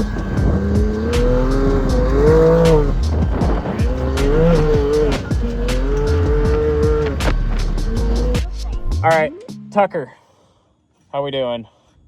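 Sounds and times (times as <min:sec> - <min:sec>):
chassis and suspension knocks: 0:00.0 - 0:08.6
race car engine revving: 0:00.0 - 0:09.0.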